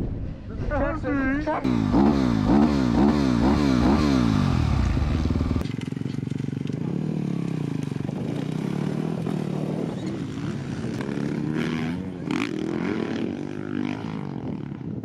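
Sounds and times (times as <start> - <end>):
dirt bike engine revving: 1.6 - 5.7, 6.8 - 14.4.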